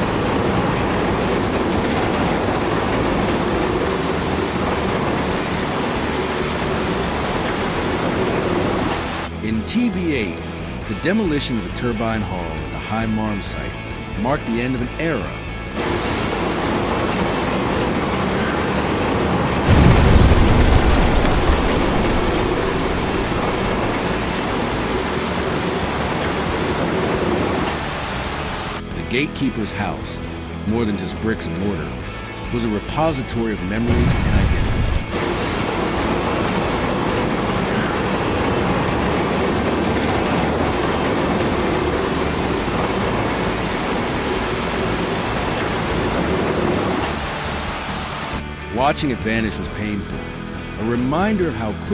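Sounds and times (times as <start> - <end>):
building collapsing rumble: 15.8 - 26.4, 33.8 - 47.5.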